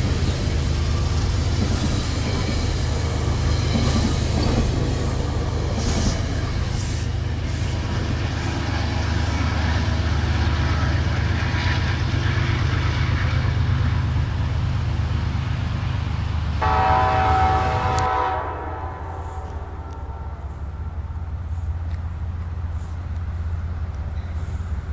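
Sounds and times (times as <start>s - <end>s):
train rumbling past: 0.0s - 24.9s
train horn chord: 16.6s - 21.7s.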